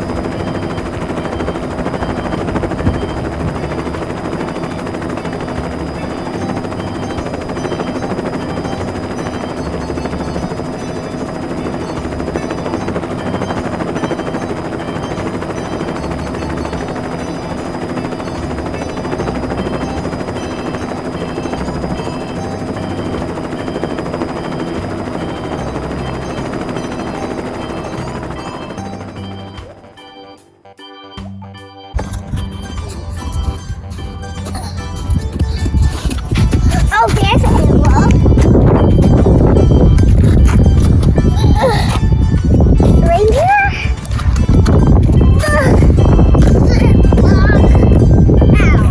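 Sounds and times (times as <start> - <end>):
helicopter rotor chopping: 0.0 - 30.2, 32.0 - 48.9
simple tune: 0.0 - 48.9.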